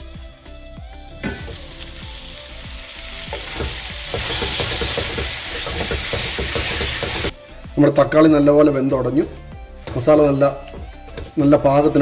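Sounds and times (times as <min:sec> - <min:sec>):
masala sizzling in a pan: 0:01.3 - 0:07.4
wooden spatula knocking on pan: 0:03.4 - 0:07.3.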